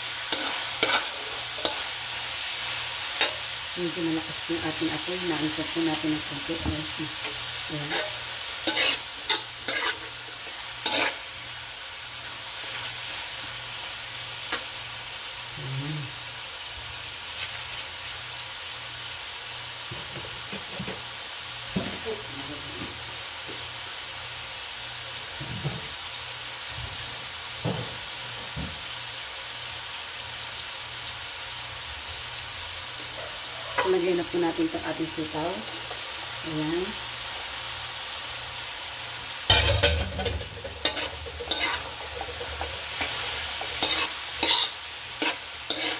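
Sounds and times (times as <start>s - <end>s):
food sizzling in a wok: 0.0s - 45.9s
metal spatula scraping a pan: 0.2s - 2.0s, 7.2s - 11.3s, 39.5s - 45.9s.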